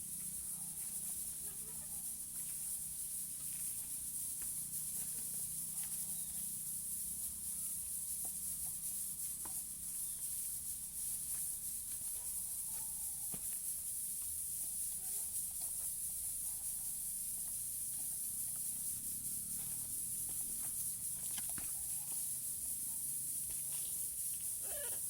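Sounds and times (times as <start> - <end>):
high-pitched hiss: 0.0 - 25.0
parrots chirping: 24.6 - 25.0.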